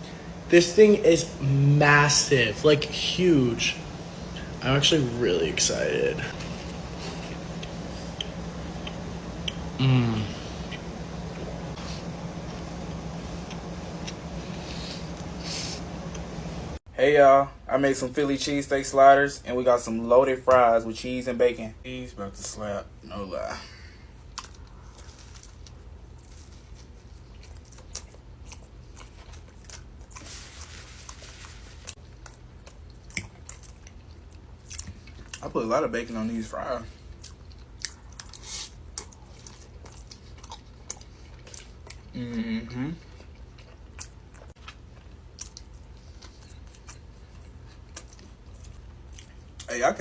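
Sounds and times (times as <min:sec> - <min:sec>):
low steady hum: 0:00.0 - 0:50.0
person chewing food: 0:02.9 - 0:16.7, 0:24.2 - 0:35.4, 0:37.0 - 0:49.7
wet mouth clicks chewing: 0:07.4 - 0:09.8.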